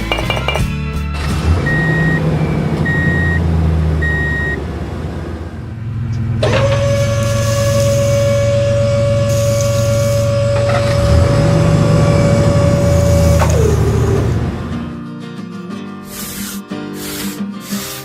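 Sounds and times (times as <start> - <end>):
steady whining motor: 1.2 - 15.0
low engine rumble: 1.2 - 15.1
reversing alarm beeps: 1.6 - 4.6, 6.8 - 14.1.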